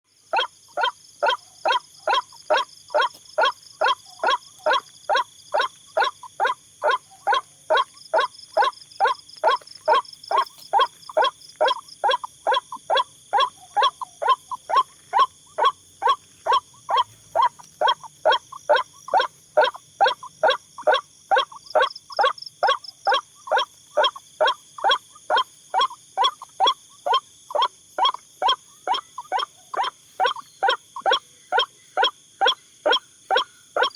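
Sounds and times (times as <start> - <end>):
waterhen calling: 0.3 - 33.9.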